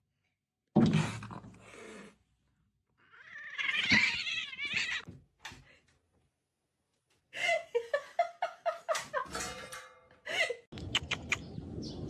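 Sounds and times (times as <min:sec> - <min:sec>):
cat yowling: 0:03.1 - 0:05.0.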